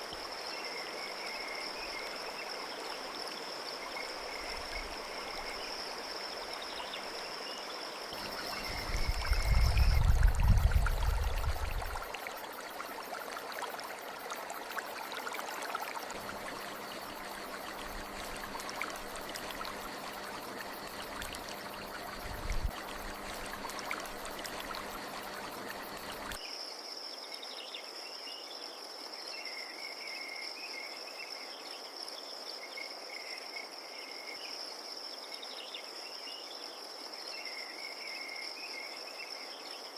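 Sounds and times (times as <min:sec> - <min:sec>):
flowing stream: 0:00.0 - 0:26.4
crickets trilling: 0:00.0 - 0:27.0.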